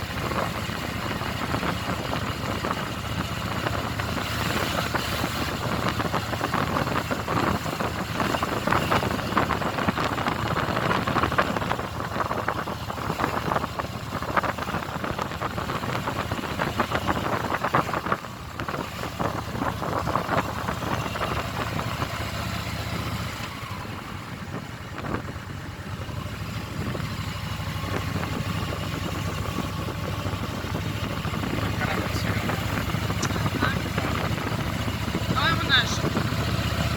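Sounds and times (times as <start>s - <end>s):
dense rushing noise: 0.0s - 36.9s
motorcycle engine running: 0.0s - 36.9s.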